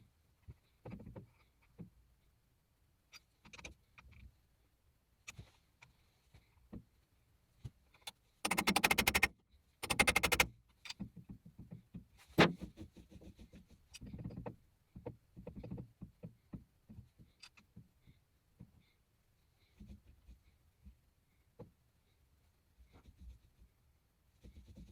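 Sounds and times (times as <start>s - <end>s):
rapid fine clicking: 8.4s - 10.5s.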